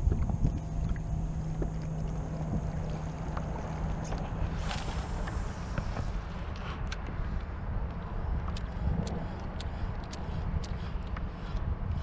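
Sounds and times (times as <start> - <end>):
water swishing: 0.0 - 6.8
knocks and clicks against hull: 0.0 - 11.3
steady low hum: 0.0 - 12.0
wind rumbling on microphone: 0.0 - 12.0.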